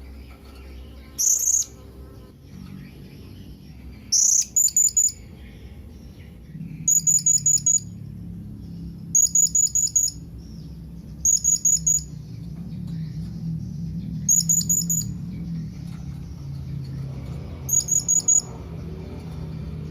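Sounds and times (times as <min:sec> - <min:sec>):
faint low hum: 0:00.0 - 0:19.9
parrot chirping: 0:00.6 - 0:01.8, 0:02.6 - 0:12.3, 0:14.0 - 0:15.5, 0:17.5 - 0:18.6.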